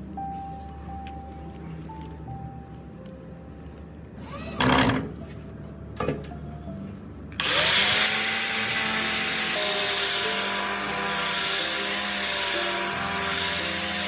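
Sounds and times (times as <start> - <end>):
power tool whining: 4.2 - 5.1, 7.4 - 14.0.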